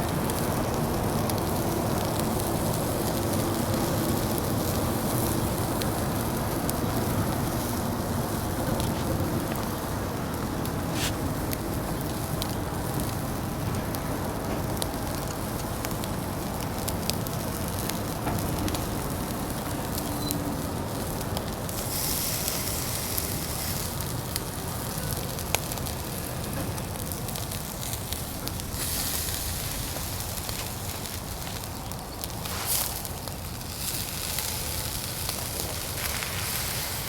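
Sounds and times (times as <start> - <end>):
fire crackling: 0.0 - 37.0
food sizzling: 19.4 - 25.1, 25.9 - 37.0.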